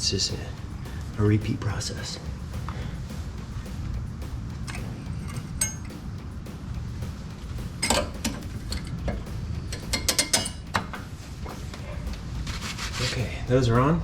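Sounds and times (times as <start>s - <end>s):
steady low hum: 0.0s - 14.0s
metallic clicks of brake pads: 7.5s - 12.2s.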